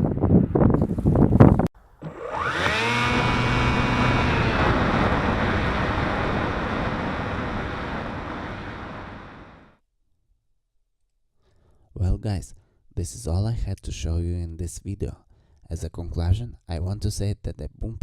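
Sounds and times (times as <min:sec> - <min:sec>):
wind on microphone: 0:00.0 - 0:01.7, 0:02.8 - 0:09.7
model plane motor whine: 0:02.0 - 0:09.8.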